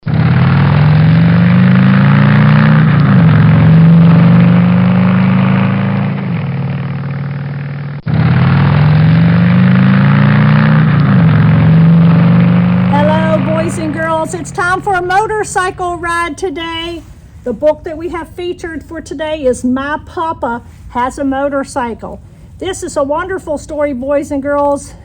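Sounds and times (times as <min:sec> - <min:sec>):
motorcycle engine revving: 0:00.0 - 0:16.6.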